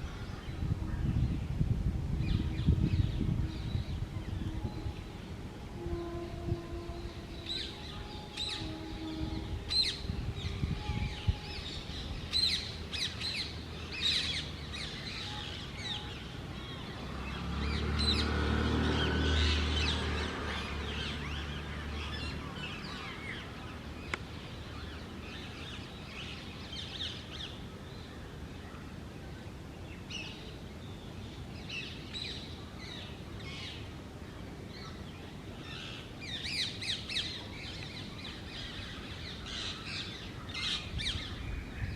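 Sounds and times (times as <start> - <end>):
low engine rumble: 0.0 - 26.0.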